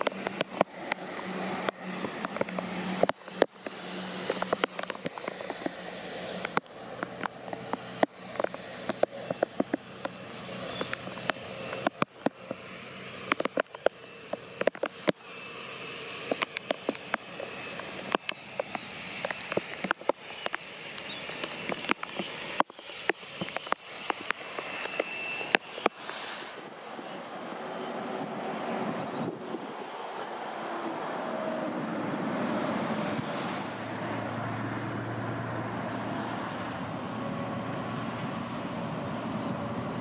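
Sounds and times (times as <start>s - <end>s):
heavy rain: 0.0s - 12.0s
raindrops tapping near microphone: 0.0s - 26.4s.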